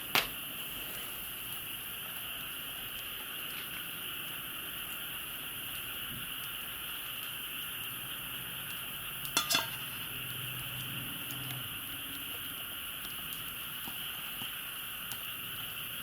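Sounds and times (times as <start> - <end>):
utensil clinking on cookware: 9.3 - 9.9.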